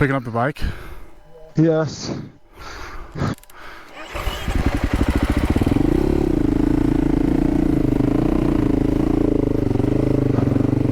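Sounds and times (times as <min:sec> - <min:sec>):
motorcycle engine pulling away: 0:03.9 - 0:10.9.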